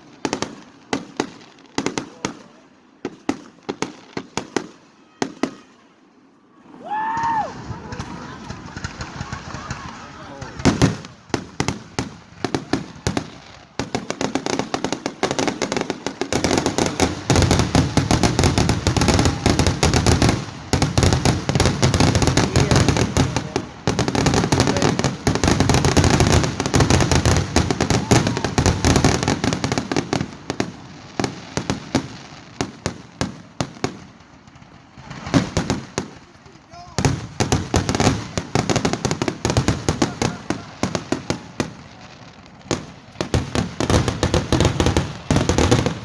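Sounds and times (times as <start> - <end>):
fireworks popping and banging: 0.0 - 5.7, 7.2 - 46.0.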